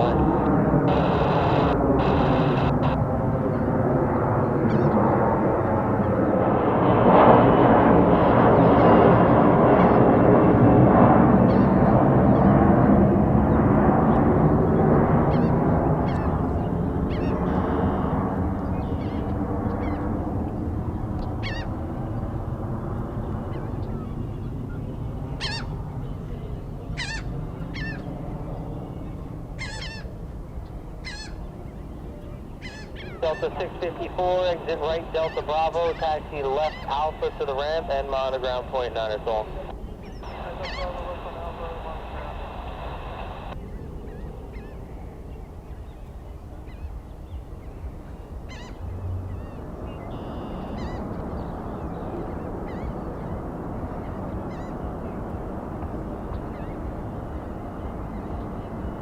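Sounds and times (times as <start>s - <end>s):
low rumble: 0.0s - 3.6s
birds honking calls: 0.0s - 6.4s, 26.9s - 43.6s, 48.4s - 55.2s
steady low rumble: 0.0s - 29.6s, 33.2s - 45.6s, 51.0s - 59.0s.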